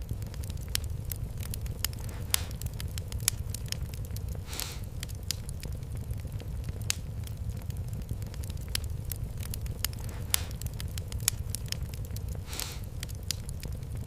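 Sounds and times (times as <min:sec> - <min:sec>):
wood fire crackling: 0:00.0 - 0:14.0
short hiss: 0:04.5 - 0:04.9, 0:12.5 - 0:12.9.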